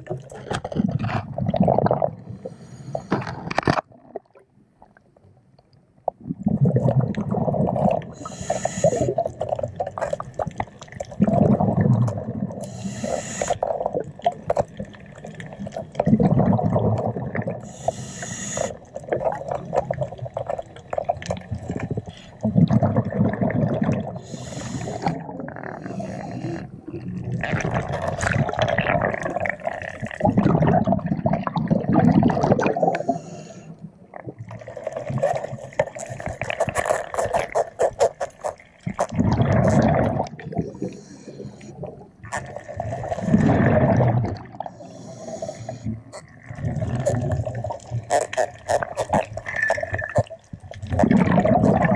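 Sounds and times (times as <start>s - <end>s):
regulator inhale hiss: 2.4s - 3.2s, 8.2s - 9.2s, 12.6s - 13.6s, 17.6s - 18.8s, 24.2s - 25.2s, 25.8s - 26.7s, 32.9s - 33.8s, 40.6s - 41.8s, 44.7s - 46.0s
gurgling exhaust bubbles: 6.1s - 8.3s, 9.0s - 12.6s, 13.5s - 17.7s, 18.7s - 33.0s, 38.5s - 41.0s, 41.8s - 44.8s, 45.9s - 51.9s.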